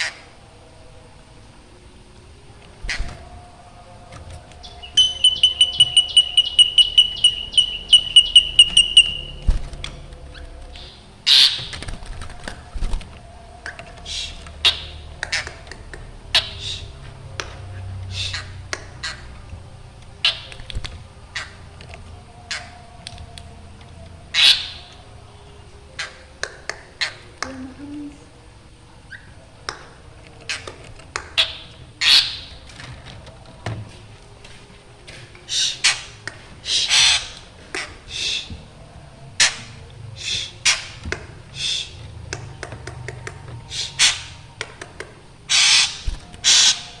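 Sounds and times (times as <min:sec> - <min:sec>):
harsh bird calls: 0:04.5 - 0:09.5, 0:10.3 - 0:11.9, 0:14.0 - 0:17.0, 0:18.0 - 0:19.4, 0:24.3 - 0:25.0, 0:31.4 - 0:32.7, 0:35.5 - 0:38.6, 0:39.4 - 0:42.4, 0:43.7 - 0:44.5, 0:45.5 - 0:47.0
bird ringing repeated notes: 0:04.6 - 0:09.5.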